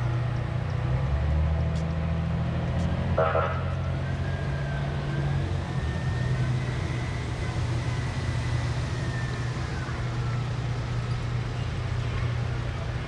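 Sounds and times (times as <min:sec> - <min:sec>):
fire truck engine running: 0:00.0 - 0:13.0
faint high whine: 0:04.2 - 0:12.8.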